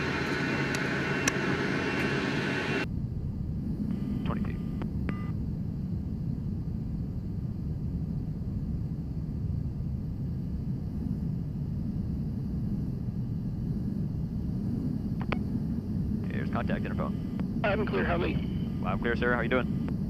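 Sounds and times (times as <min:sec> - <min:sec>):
jet aircraft roar: 0:00.0 - 0:05.0, 0:06.3 - 0:20.0.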